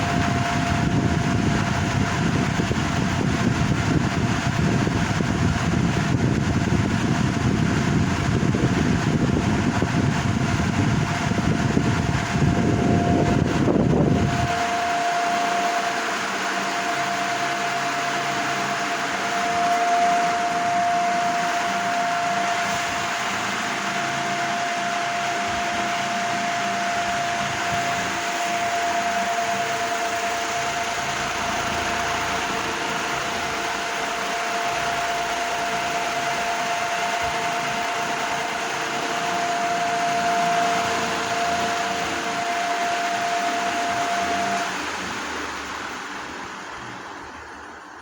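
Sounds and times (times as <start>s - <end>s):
heavy low rumble: 0.0s - 15.2s
fan airflow hiss: 0.0s - 48.0s
fan motor hum: 0.0s - 48.0s.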